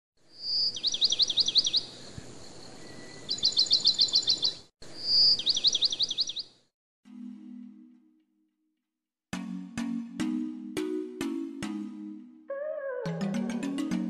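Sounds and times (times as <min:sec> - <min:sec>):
songbird singing: 0:00.3 - 0:06.6.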